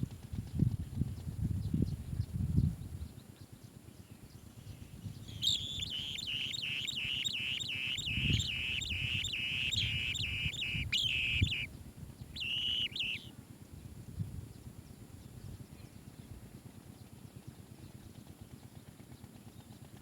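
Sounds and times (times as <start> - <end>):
bird chirping rapidly: 5.2 - 11.7, 12.4 - 13.3.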